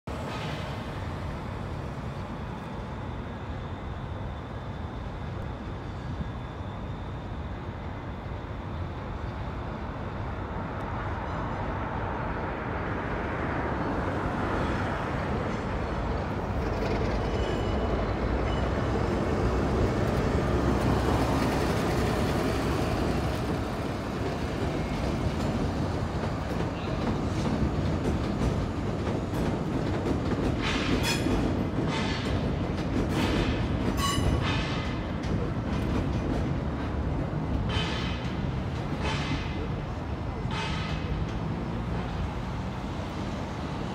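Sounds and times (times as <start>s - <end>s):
train wheels rumbling on rail: 0.1s - 43.9s
high-pitched wheel squeals: 34.0s - 34.4s.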